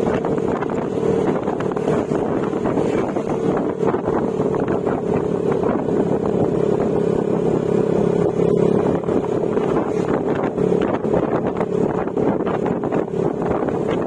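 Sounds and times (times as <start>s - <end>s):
scooter engine cruising: 0.0s - 14.0s
wind noise on microphone: 0.0s - 14.0s.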